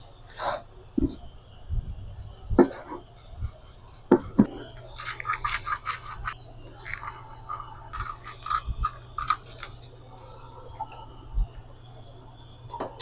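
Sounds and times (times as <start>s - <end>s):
scratchy scraping in food preparation: 4.6s - 9.8s.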